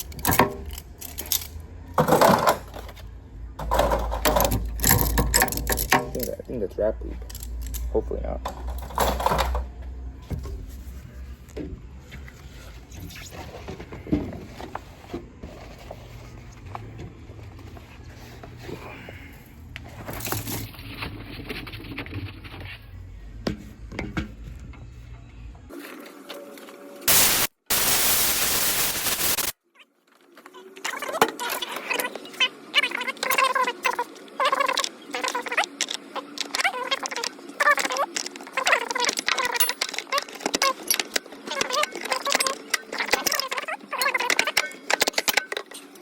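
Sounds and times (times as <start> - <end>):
wrenches clinking and knocking: 0.0 - 9.9, 20.0 - 21.0, 34.5 - 45.9
bursts of hiss: 27.1 - 29.6.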